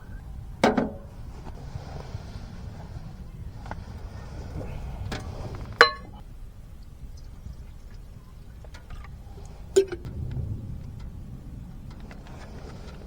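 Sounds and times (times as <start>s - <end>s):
low rumble: 0.0s - 13.0s
cookware clinking: 5.7s - 6.2s.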